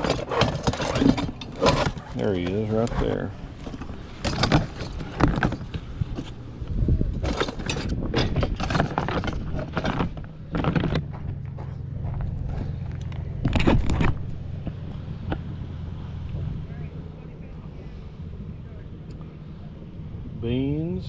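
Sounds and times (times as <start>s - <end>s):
objects knocking and scraping: 0.0s - 6.4s, 7.0s - 15.5s
steady low hum: 0.0s - 21.0s.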